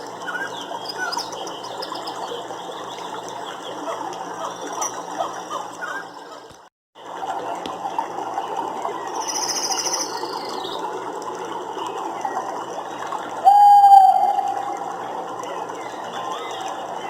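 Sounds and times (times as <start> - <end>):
loud steady pitched call: 13.4 - 14.9.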